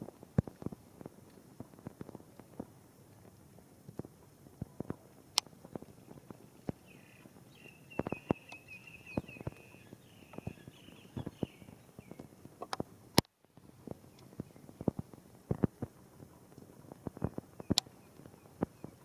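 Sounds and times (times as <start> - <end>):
raindrops tapping: 0.0 - 19.0
soft steady rain hiss: 0.0 - 19.0
bird chirping trill: 6.7 - 12.2.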